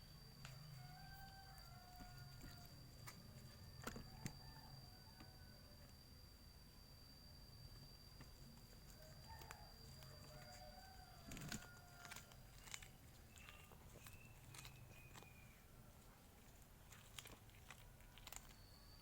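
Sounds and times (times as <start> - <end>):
faint chicken calls: 0.0 - 6.0, 8.8 - 16.6
small clicks: 11.2 - 15.6, 16.4 - 19.0.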